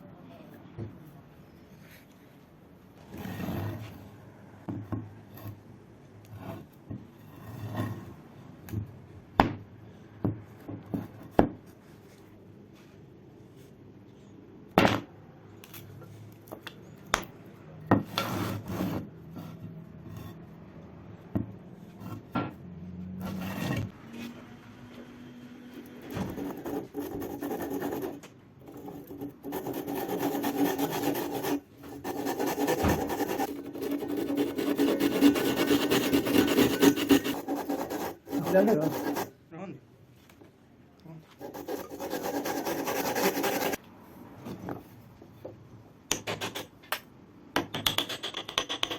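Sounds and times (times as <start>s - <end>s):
rough rubbing strokes: 28.8s - 39.3s, 41.4s - 43.8s.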